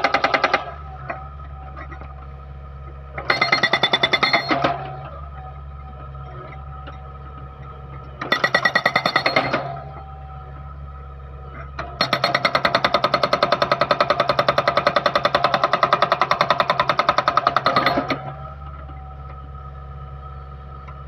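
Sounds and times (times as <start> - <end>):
diesel engine running: 0.0 - 21.0
hydraulic breaker hammering: 3.2 - 5.1, 8.2 - 10.0, 11.7 - 18.4.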